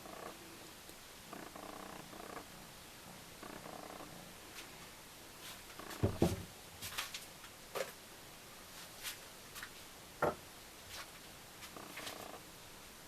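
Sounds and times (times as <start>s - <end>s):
knocks and clicks of objects handled: 5.9s - 6.5s, 10.2s - 10.4s.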